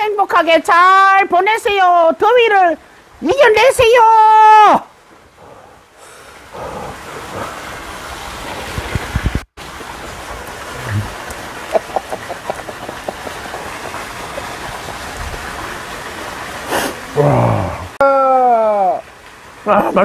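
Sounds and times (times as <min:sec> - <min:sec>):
steady rushing background noise: 0:05.4 - 0:16.2.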